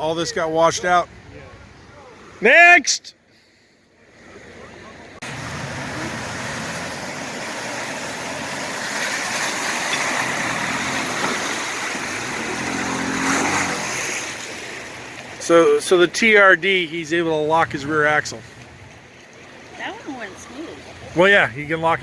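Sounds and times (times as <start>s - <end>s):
water rushing and splashing: 0.0s - 3.1s, 4.0s - 22.0s
truck engine under load: 4.5s - 15.3s.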